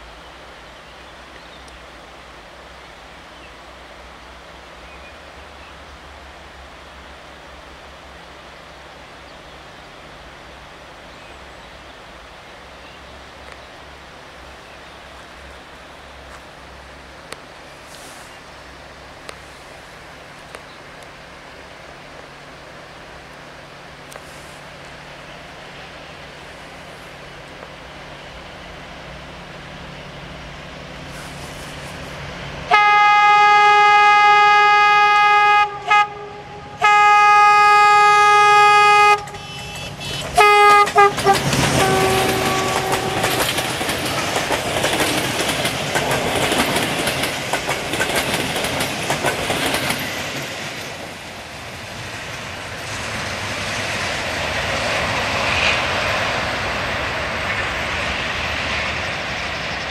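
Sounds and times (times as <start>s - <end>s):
locomotive engine noise: 0.0s - 59.9s
locomotive horn blasts: 32.7s - 43.6s
wheels clacking over rail joints: 39.2s - 57.8s.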